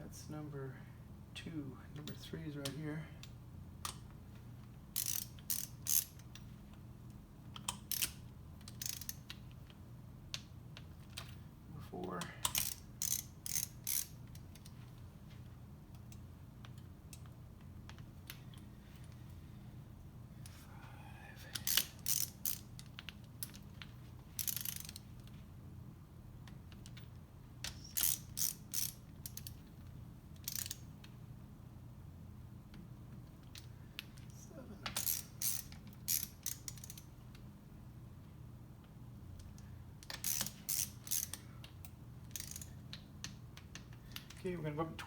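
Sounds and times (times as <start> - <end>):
ratcheting wrench clicking: 4.9 - 6.5, 7.5 - 9.7, 12.2 - 14.8, 21.5 - 25.2, 26.7 - 29.7, 30.4 - 30.9, 34.8 - 37.1, 39.4 - 44.4.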